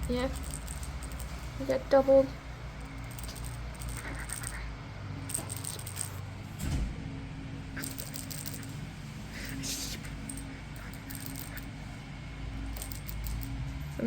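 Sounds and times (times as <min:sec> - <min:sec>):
jingly toy rattling: 0:00.0 - 0:06.4, 0:07.8 - 0:11.9, 0:12.6 - 0:14.0.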